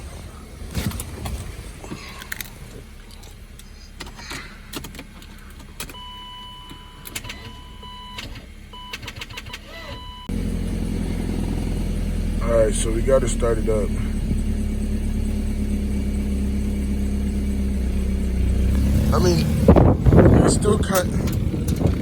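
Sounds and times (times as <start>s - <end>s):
car engine running: 0.0s - 22.0s
low engine hum: 0.0s - 22.0s
car electronic warning chime: 5.9s - 10.4s.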